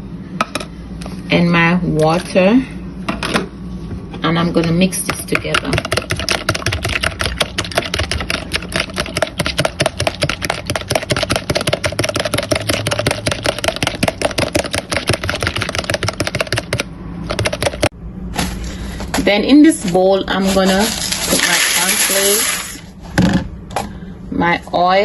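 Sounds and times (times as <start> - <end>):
whisk clicking against bowl: 5.1 - 17.9.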